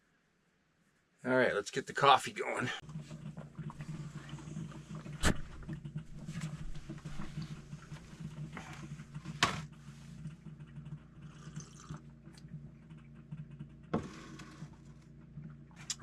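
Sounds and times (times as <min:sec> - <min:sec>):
rustling and handling noises: 0:02.9 - 0:10.6.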